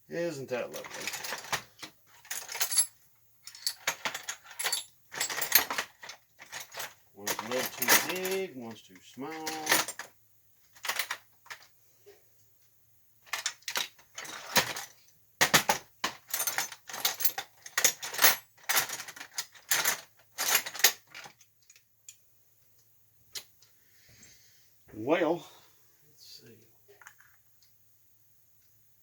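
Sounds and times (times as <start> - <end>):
metal tools clinking: 0.6 - 10.1, 10.8 - 11.7, 13.3 - 22.2.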